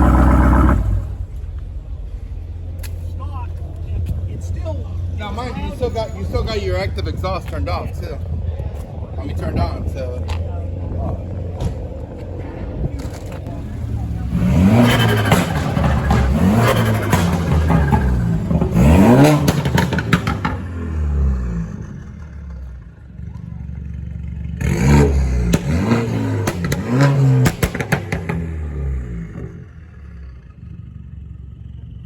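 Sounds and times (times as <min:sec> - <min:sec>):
car engine revving: 0:00.0 - 0:05.6, 0:09.8 - 0:32.0
exhaust pops and crackles: 0:07.0 - 0:29.6.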